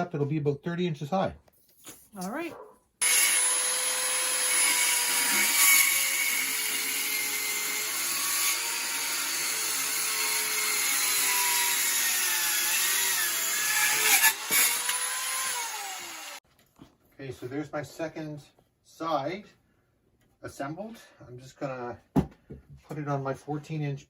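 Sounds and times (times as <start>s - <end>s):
power tool motor whining: 3.0s - 16.4s.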